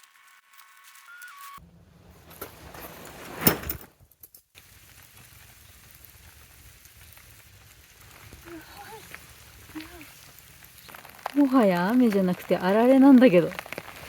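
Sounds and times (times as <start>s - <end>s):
hail and rain pattering: 4.6s - 14.0s.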